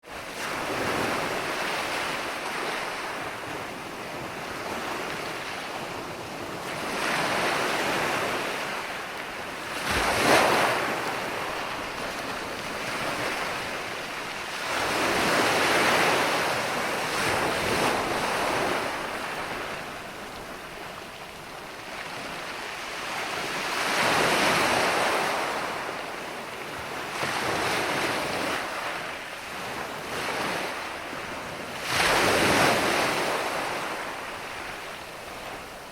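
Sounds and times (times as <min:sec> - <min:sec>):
ocean waves washing in: 0:00.0 - 0:35.9.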